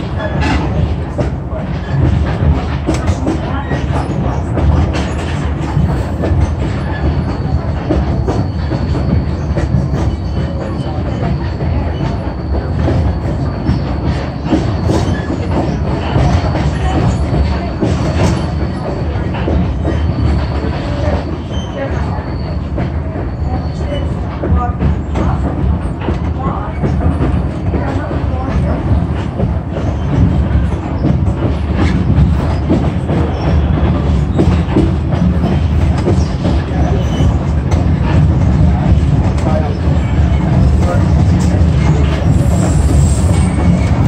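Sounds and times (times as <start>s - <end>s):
train car knocks and rattles: 0.0s - 44.0s
train wheels rumbling on rails: 0.0s - 44.0s.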